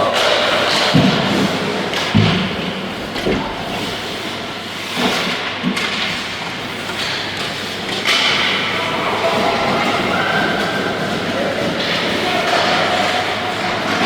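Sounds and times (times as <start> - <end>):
echoing play in indoor hall: 0.0 - 14.0.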